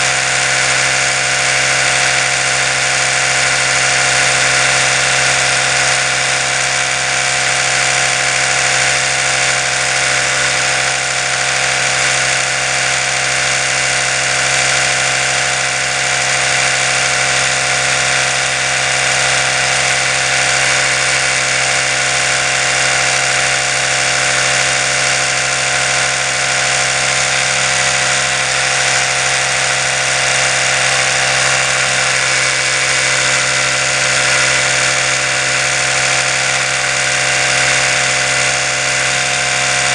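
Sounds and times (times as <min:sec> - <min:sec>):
electric toothbrush buzzing: 0:00.0 - 0:39.9.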